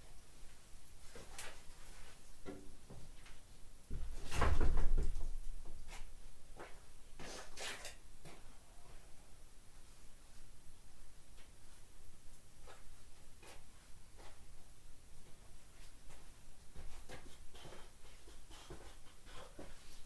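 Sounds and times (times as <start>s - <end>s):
knocks and clatter of work: 3.9s - 5.4s.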